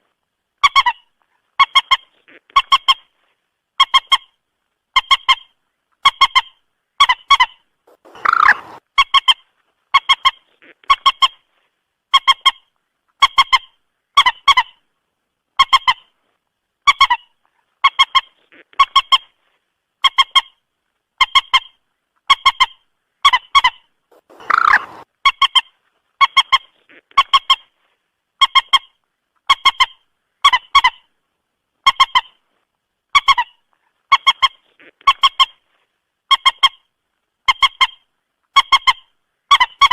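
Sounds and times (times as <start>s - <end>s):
harsh moorhen call: 7.3s - 8.8s, 23.6s - 25.1s
moorhen honking calls: 7.9s - 8.8s, 24.1s - 25.0s.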